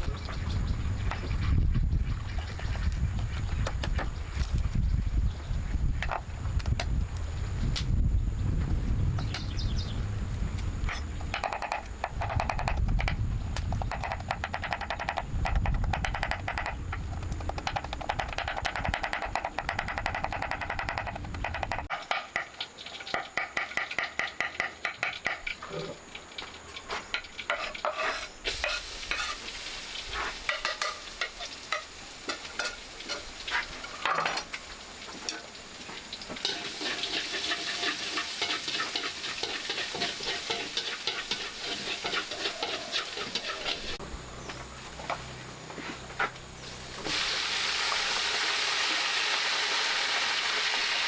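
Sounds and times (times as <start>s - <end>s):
utensil tapping and scraping pan: 10.8s - 25.6s, 27.0s - 29.4s, 30.1s - 34.5s, 36.3s - 44.0s
food sizzling in a pan: 25.1s - 44.0s, 46.6s - 51.0s.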